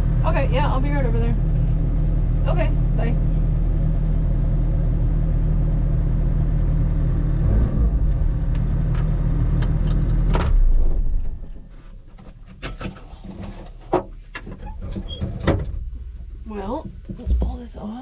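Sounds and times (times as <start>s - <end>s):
diesel engine running: 0.0s - 12.0s, 14.2s - 18.0s.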